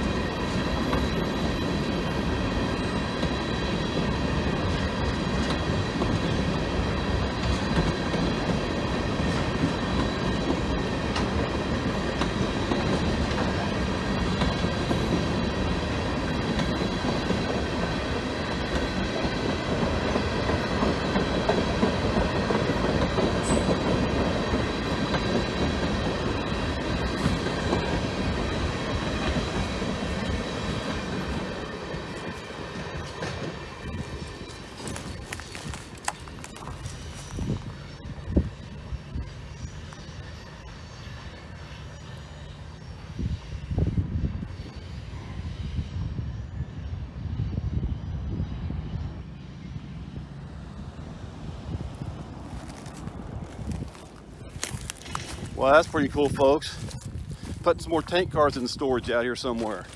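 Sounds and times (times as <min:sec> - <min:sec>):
train wheels rumbling on rail: 0:00.0 - 0:59.9
high wheel squeal: 0:23.1 - 0:50.2.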